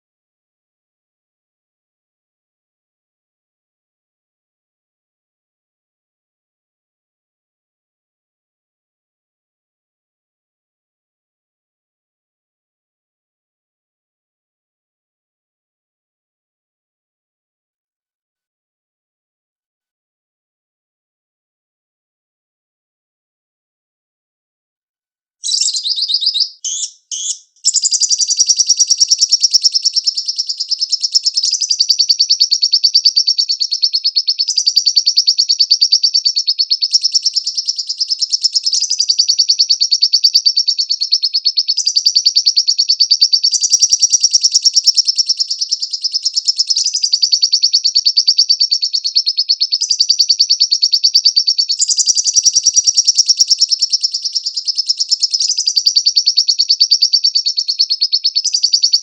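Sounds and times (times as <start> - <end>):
bird chattering trill: 25.4 - 59.0.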